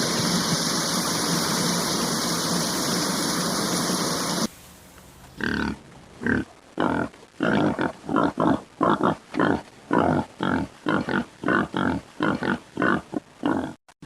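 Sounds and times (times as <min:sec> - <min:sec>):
pig grunting: 0:05.4 - 0:13.8.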